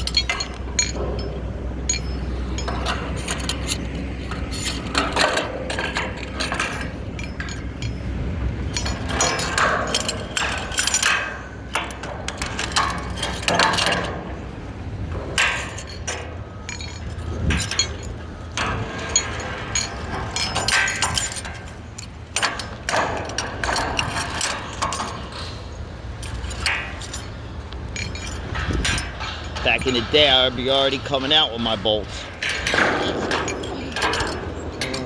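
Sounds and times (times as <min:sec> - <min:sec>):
metallic clinks and knocks: 0:00.0 - 0:14.4, 0:15.0 - 0:35.0
steady low rumble: 0:00.0 - 0:35.0.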